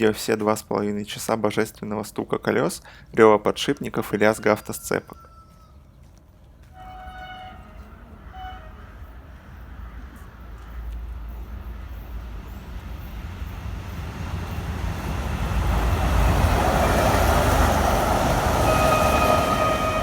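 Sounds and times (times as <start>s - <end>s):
electric train rumble: 6.6s - 20.0s.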